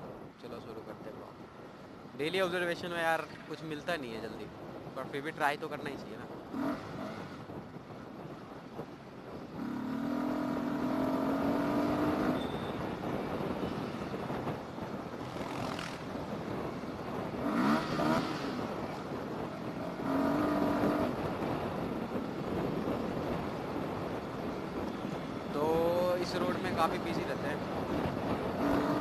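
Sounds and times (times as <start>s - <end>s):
wind and road noise: 0.0s - 29.0s
motorcycle engine accelerating: 9.5s - 13.4s, 15.2s - 23.4s, 27.9s - 29.0s.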